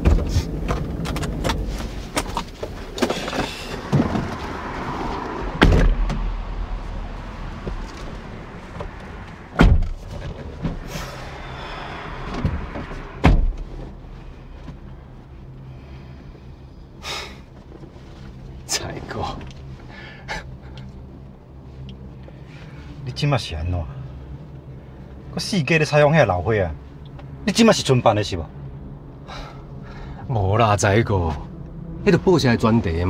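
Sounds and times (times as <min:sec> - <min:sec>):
low mechanical hum: 0:00.0 - 0:33.0
heavy door thumps: 0:05.6 - 0:06.2, 0:09.6 - 0:10.9, 0:12.3 - 0:13.6.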